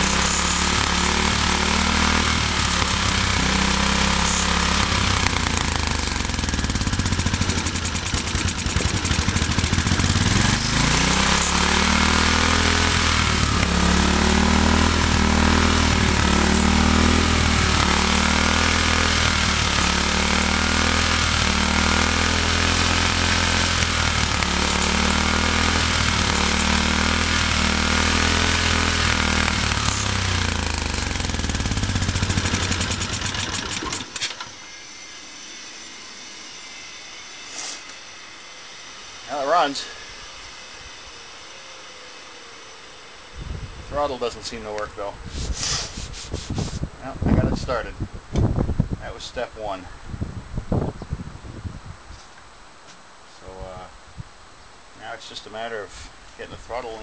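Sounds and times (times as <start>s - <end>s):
lawn tractor engine running unevenly: 0.0s - 34.6s.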